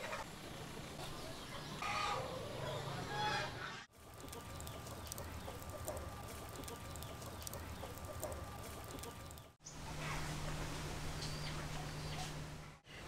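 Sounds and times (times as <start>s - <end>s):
faint clucking bird calls: 0.0s - 13.0s
faint clicks: 4.2s - 9.5s.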